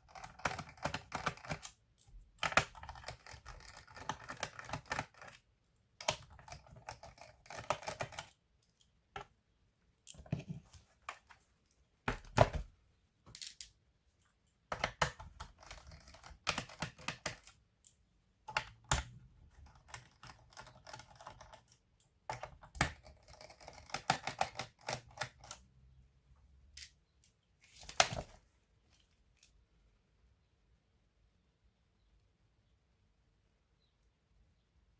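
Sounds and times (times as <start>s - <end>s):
laptop clicks and plastic rattles: 0.0s - 5.4s, 14.6s - 17.9s, 18.5s - 25.6s.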